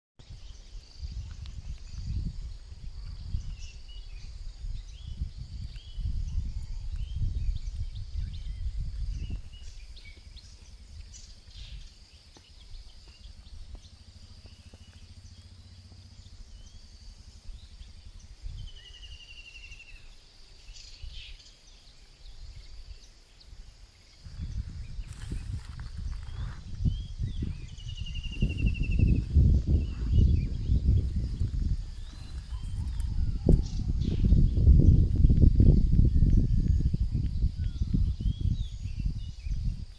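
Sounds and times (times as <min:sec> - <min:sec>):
high insect drone: 0:00.2 - 0:39.9
bird chirps: 0:00.3 - 0:39.9
low rumble: 0:24.2 - 0:39.7.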